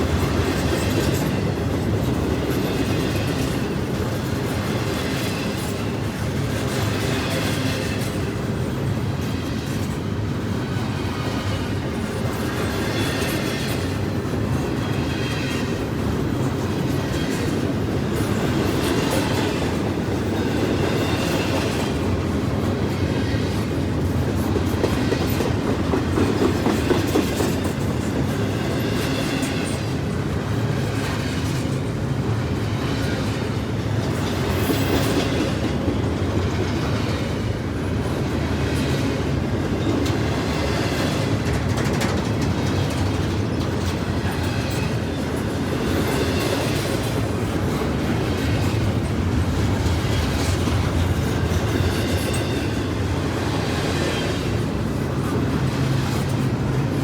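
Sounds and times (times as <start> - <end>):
freight train cars rumbling: 0.0 - 57.0
wheels clicking over rail joints: 38.0 - 57.0.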